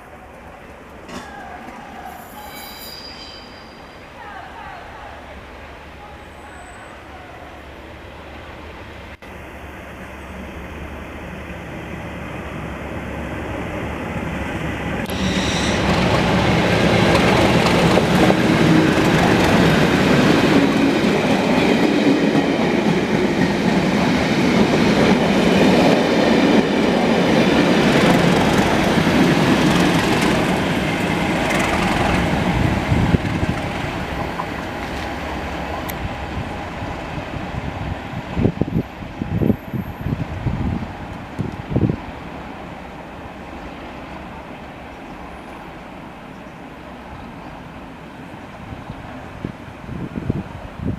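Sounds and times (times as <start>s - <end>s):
diesel locomotive engine: 0.0s - 50.9s
train wheels clickety-clack: 15.0s - 35.2s.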